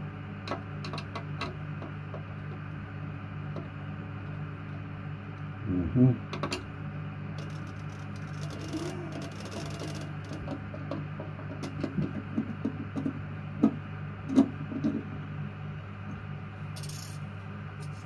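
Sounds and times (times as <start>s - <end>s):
steady low hum: 0.0s - 18.0s
small metal parts clicking and knocking: 16.8s - 17.2s.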